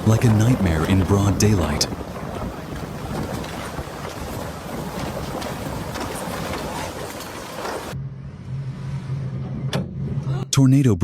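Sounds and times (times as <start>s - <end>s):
rushing wind and water: 0.0s - 8.0s
wind buffeting microphone: 0.0s - 8.0s.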